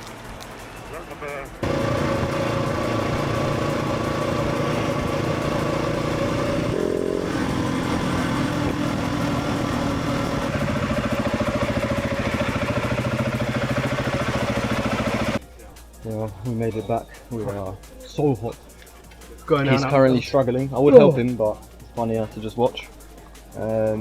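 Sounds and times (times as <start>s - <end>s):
motorcycle engine running: 1.6s - 15.4s.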